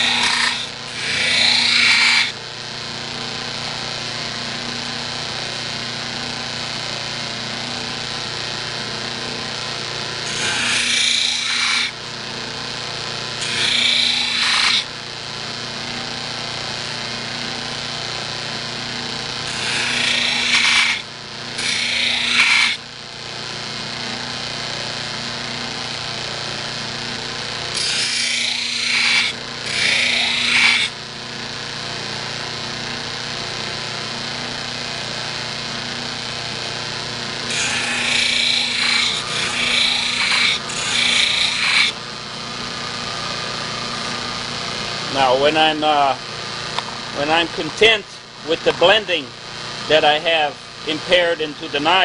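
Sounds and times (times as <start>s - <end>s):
knife grinding on wheel: 0.0s - 2.4s, 10.2s - 12.0s, 13.3s - 14.9s, 19.3s - 22.8s, 27.7s - 31.0s, 37.4s - 42.0s
bench buffer motor running: 0.0s - 52.0s.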